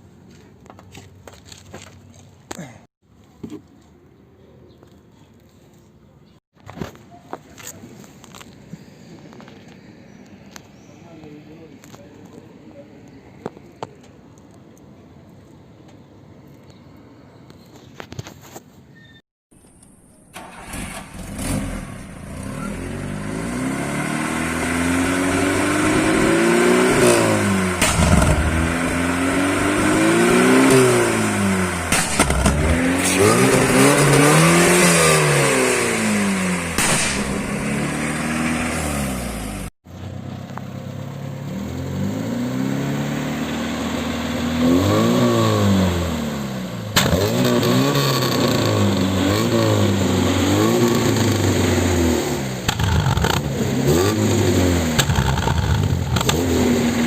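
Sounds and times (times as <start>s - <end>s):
car engine revving: 20.4s - 40.2s, 40.9s - 57.0s
exhaust backfire pops: 26.9s - 35.0s, 35.8s - 39.7s, 46.9s - 49.1s, 52.6s - 53.6s, 54.3s - 56.6s.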